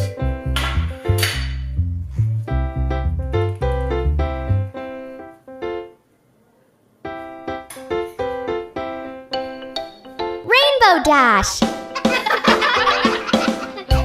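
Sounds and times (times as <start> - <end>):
electric piano music: 0.0 - 6.1, 7.0 - 10.8.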